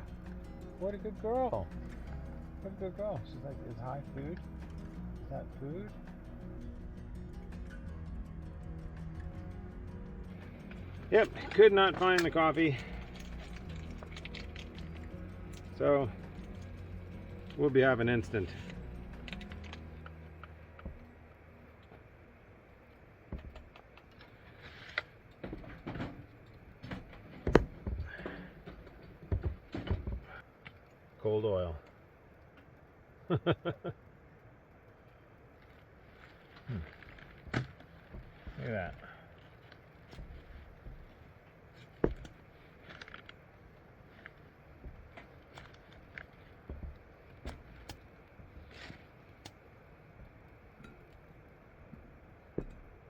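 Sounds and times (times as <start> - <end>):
cooking gear clinking and clattering: 10.7 - 17.6.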